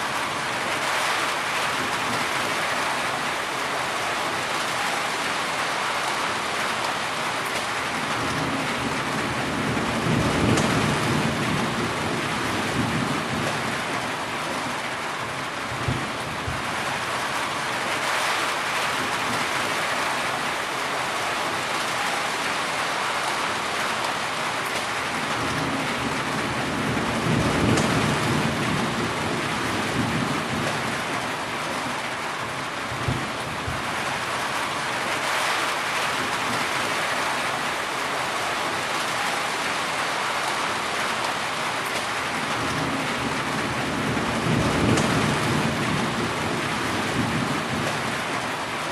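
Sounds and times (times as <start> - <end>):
heavy rain: 0.0 - 48.9
thunder rumbling: 8.1 - 14.4, 25.2 - 31.2, 42.4 - 48.4.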